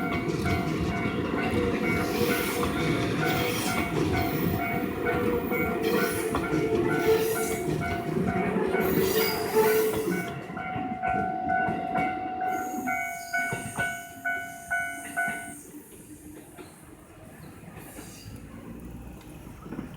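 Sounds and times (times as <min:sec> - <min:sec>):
level crossing warning bell: 0:00.0 - 0:15.6
train wheel and rail noise: 0:00.0 - 0:19.9.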